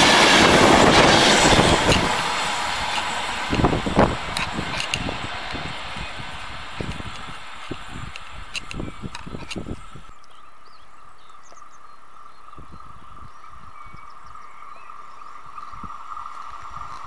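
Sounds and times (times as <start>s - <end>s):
train rumble: 0.0s - 10.1s
electric train hum: 0.0s - 10.2s, 11.6s - 17.0s
birds chirping: 1.4s - 16.4s.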